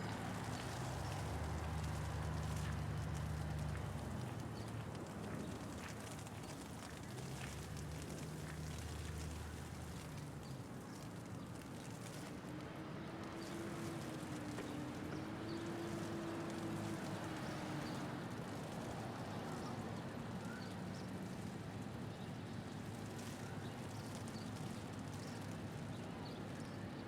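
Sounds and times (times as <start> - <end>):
low engine hum: 0.0 - 10.6
road traffic noise: 0.0 - 26.9.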